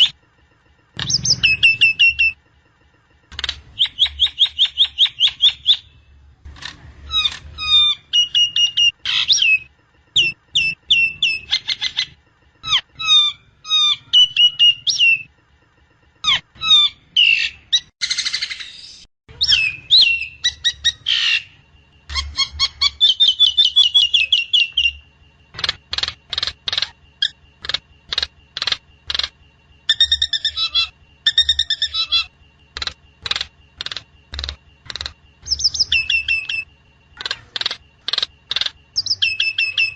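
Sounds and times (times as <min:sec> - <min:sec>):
faint low hum: 0:00.0 - 0:17.8, 0:19.3 - 0:39.9
myna whistling calls: 0:01.0 - 0:02.4, 0:03.7 - 0:06.0, 0:16.2 - 0:25.0, 0:25.6 - 0:39.9.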